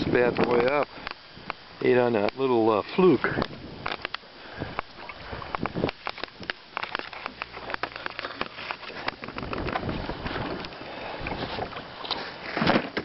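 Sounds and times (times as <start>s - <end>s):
fish being handled in a boat: 0.0s - 13.0s
rustling scraping noise: 6.0s - 13.0s.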